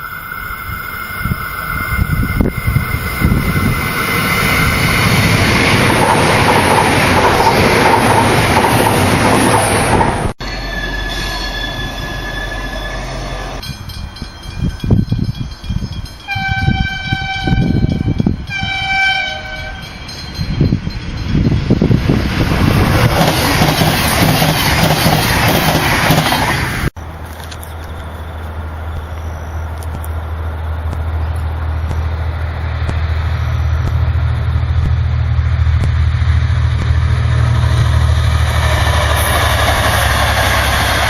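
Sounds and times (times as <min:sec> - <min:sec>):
passenger train passing: 0:00.0 - 0:41.0
train horn: 0:16.3 - 0:20.0.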